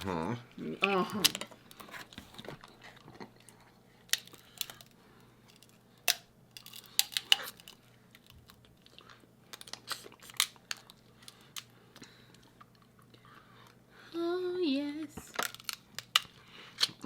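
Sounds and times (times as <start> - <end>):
chewing: 0.8 - 4.9, 8.4 - 13.8
shellfish shell cracking: 4.1 - 11.7, 15.3 - 17.0.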